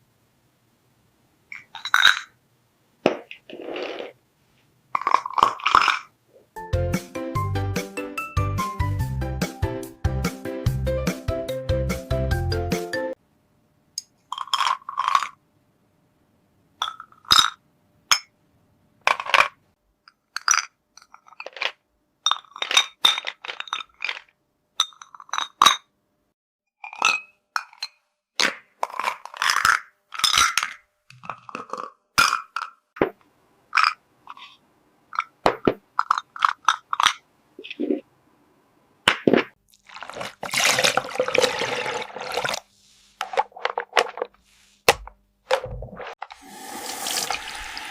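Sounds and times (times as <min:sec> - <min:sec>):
toy dishes clinking together: 0:01.5 - 0:02.4, 0:05.0 - 0:06.1, 0:16.8 - 0:18.3, 0:19.1 - 0:25.9, 0:26.8 - 0:32.8, 0:33.7 - 0:37.2.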